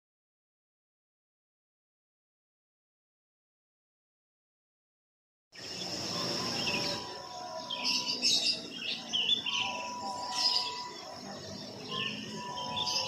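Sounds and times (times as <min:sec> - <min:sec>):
birds chirping: 0:05.6 - 0:13.0
high-pitched insect drone: 0:05.6 - 0:13.0.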